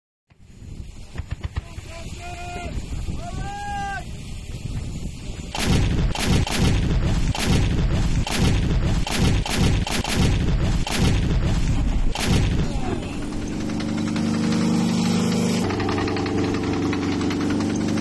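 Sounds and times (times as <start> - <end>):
autocannon firing heavy shots: 5.5 - 14.9.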